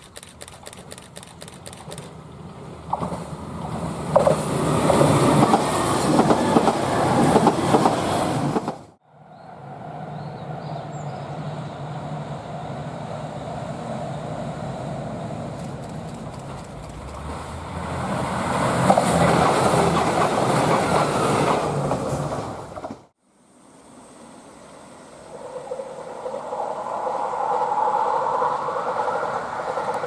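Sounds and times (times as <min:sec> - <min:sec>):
low train hum: 0:00.0 - 0:30.0
train wheels clattering on rails: 0:02.8 - 0:08.9, 0:15.5 - 0:23.1.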